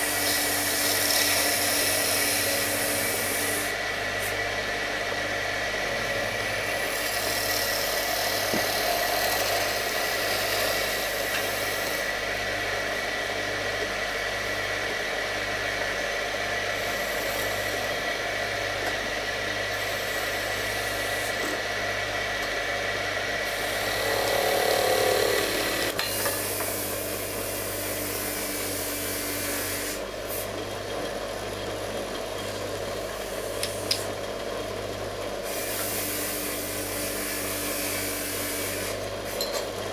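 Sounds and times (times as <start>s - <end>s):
wood rubbing on lathe: 0.0s - 4.8s, 5.5s - 12.2s, 16.6s - 18.2s, 19.6s - 21.7s, 23.2s - 30.4s
wood lathe running: 0.0s - 39.3s.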